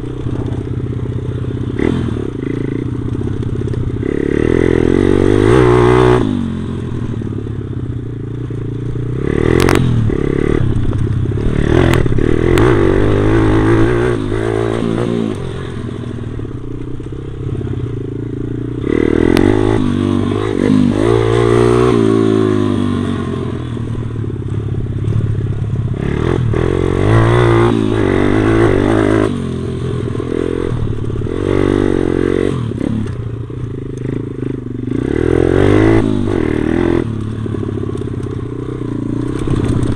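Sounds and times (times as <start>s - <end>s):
small motorbike engine revving: 1.7s - 7.1s, 9.1s - 16.4s, 18.6s - 23.8s.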